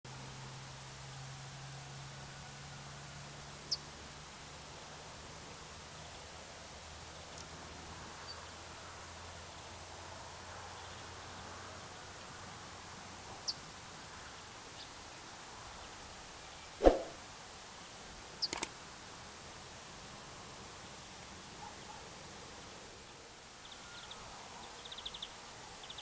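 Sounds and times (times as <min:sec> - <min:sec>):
faint outdoor hiss: 0:00.0 - 0:26.0
quick sharp clicks: 0:18.4 - 0:18.7.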